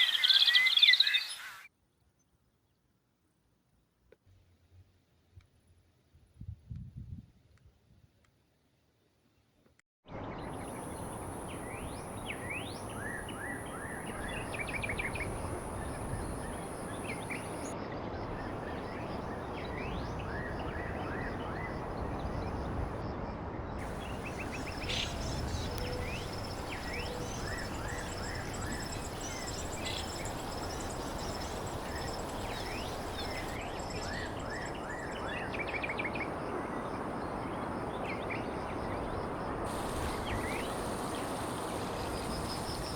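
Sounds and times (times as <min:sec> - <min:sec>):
small birds chirping: 0:10.4 - 0:17.8, 0:23.8 - 0:42.9
high insect buzz: 0:10.6 - 0:17.7, 0:23.8 - 0:33.7, 0:39.7 - 0:42.9
background hiss: 0:10.6 - 0:17.8, 0:23.8 - 0:35.8, 0:39.5 - 0:42.9.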